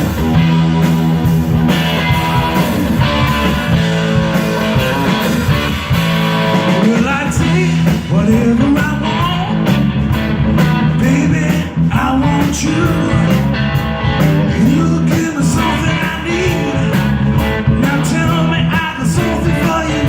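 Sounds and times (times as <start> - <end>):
electric guitar riff: 0.0 - 18.6
bass and drums: 0.0 - 20.0
person singing: 6.7 - 9.6, 11.0 - 13.5, 14.4 - 17.1, 17.8 - 20.0.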